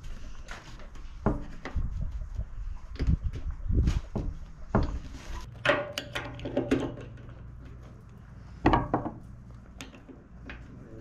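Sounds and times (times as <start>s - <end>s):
metal parts and tools clattering: 5.4s - 9.0s.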